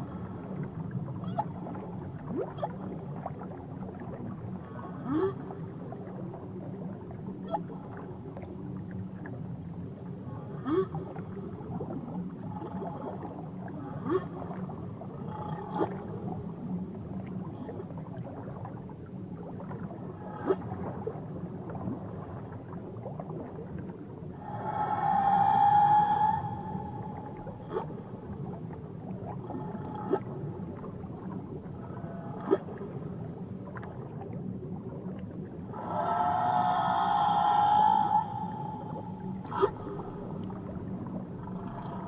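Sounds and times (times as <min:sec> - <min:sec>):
whale calls: 0:00.0 - 0:03.0, 0:12.4 - 0:16.4, 0:24.4 - 0:30.8, 0:31.7 - 0:32.8, 0:35.7 - 0:42.0
underwater hiss: 0:24.4 - 0:27.8, 0:35.7 - 0:40.0.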